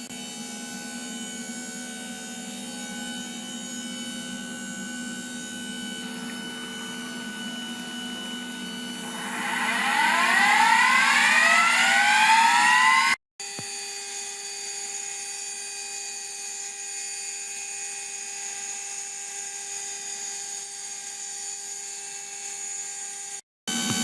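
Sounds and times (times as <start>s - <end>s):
machine spindle whining: 8.6s - 13.2s.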